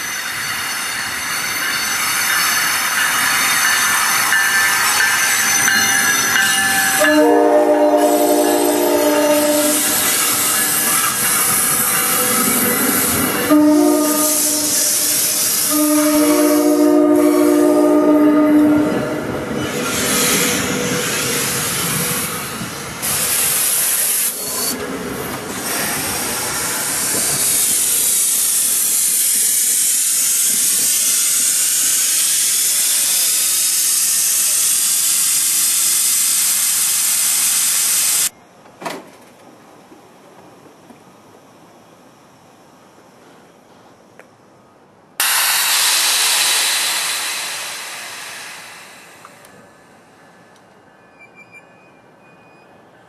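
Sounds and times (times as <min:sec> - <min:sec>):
electric train rolling past: 0:00.0 - 0:38.4, 0:39.2 - 0:53.0
train air horn blasts: 0:06.9 - 0:10.1, 0:13.4 - 0:19.3.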